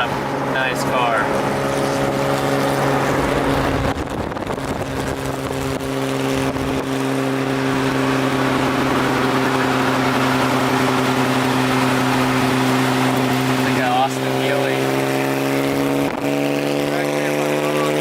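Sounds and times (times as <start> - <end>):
car engine drone: 0.0 - 18.0
wind and road noise: 0.0 - 18.0
low rumble: 0.1 - 12.6.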